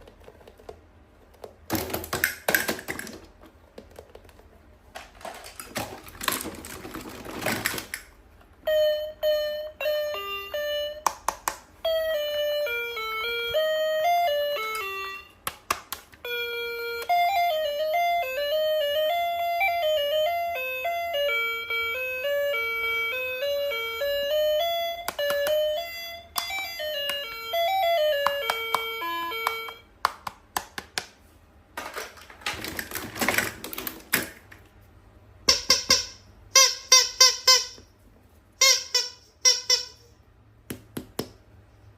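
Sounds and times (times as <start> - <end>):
toy beeping melody: 8.6 - 15.4, 16.2 - 29.9.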